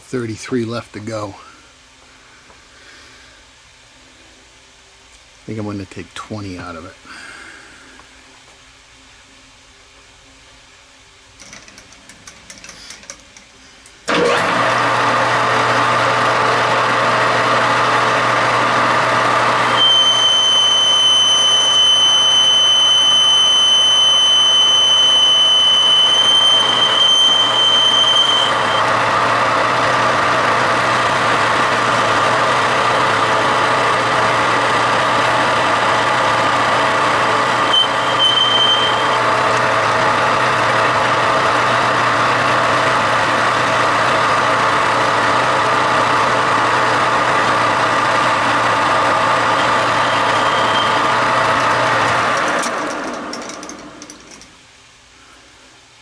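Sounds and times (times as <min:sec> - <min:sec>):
high-pitched cutting squeal: 0:14.1 - 0:41.0, 0:42.2 - 0:52.5
metal-cutting machine running: 0:14.1 - 0:54.4.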